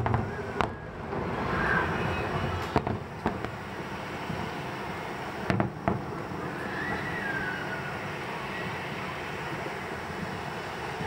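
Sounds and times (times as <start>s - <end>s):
background rumble: 0.0s - 11.0s
fireworks sharp bangs: 0.0s - 11.0s.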